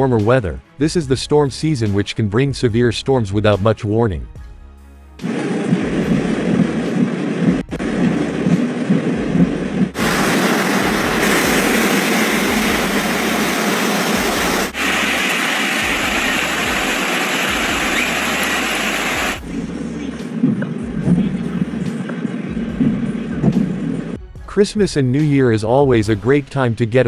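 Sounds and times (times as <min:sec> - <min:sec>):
heavy rain and floodwater rushing: 0:05.3 - 0:19.4
low rumble: 0:05.7 - 0:13.6.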